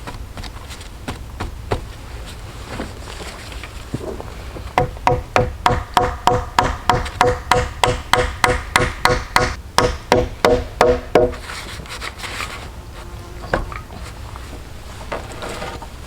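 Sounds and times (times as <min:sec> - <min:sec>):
hand tool striking wood: 0:04.8 - 0:11.6.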